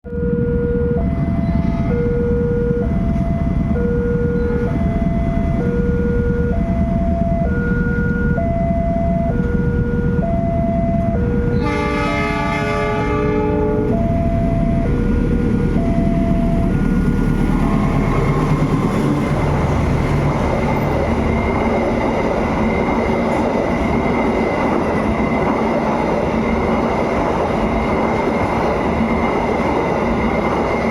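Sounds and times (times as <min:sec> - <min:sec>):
level-crossing alarm ringing: 0:00.1 - 0:30.9
train wheels rumbling on rails: 0:00.1 - 0:30.9
locomotive horn blasting: 0:11.5 - 0:14.0
high ringing tone: 0:13.0 - 0:19.4.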